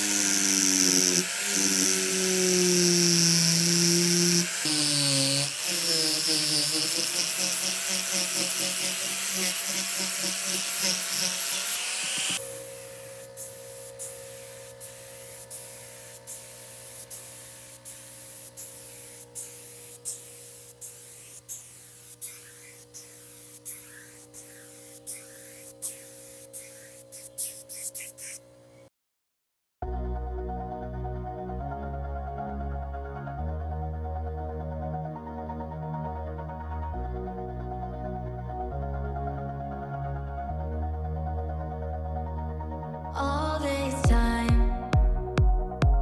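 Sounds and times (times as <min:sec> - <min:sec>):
power tool motor whining: 0:00.0 - 0:28.7
background music with held chords: 0:29.8 - 0:46.0.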